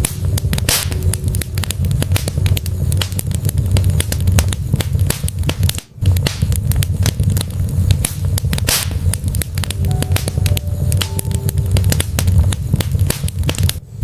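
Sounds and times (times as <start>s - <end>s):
fire low rumble: 0.0s - 14.0s
wood fire crackling and popping: 0.0s - 14.0s.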